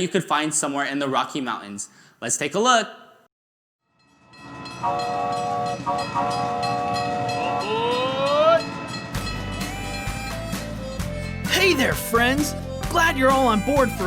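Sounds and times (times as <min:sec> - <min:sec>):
chord-like train horn: 0:04.8 - 0:07.7.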